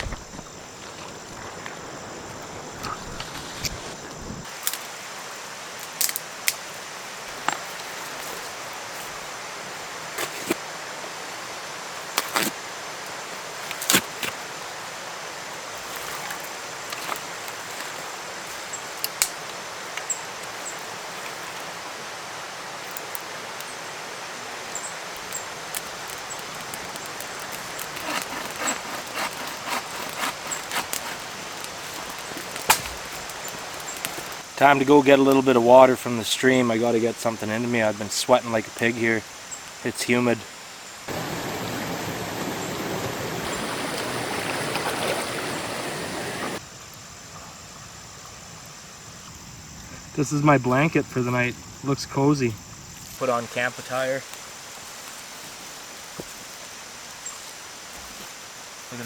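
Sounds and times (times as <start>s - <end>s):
sticks snapping and cracking: 4.5s - 5.0s, 5.8s - 6.6s, 13.7s - 14.4s, 19.0s - 20.1s, 25.2s - 34.4s
creek rushing: 41.1s - 46.6s.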